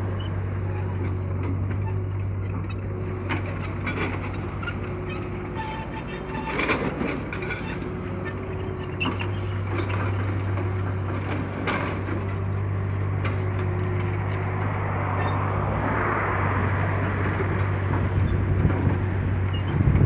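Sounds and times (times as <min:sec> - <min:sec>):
diesel engine running: 0:00.0 - 0:20.0
knocks and clanks: 0:06.0 - 0:14.8.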